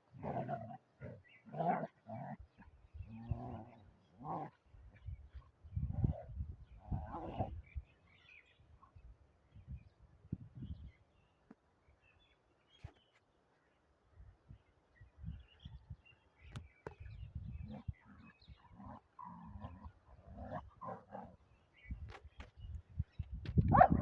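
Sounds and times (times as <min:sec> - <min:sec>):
dog growling: 0:00.2 - 0:04.6, 0:17.6 - 0:21.4.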